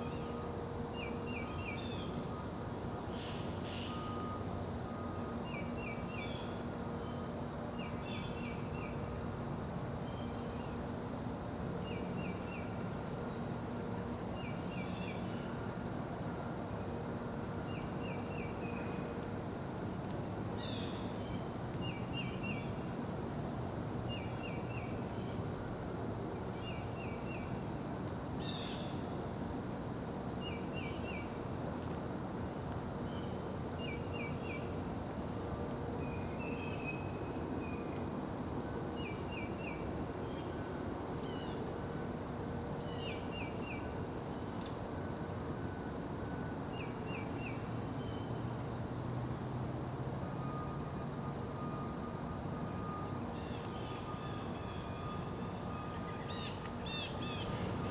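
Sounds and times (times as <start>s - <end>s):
insect pulsed chirp: 0.0s - 57.9s
low background noise: 0.0s - 57.9s
insect high-pitched trilling: 52.8s - 57.9s.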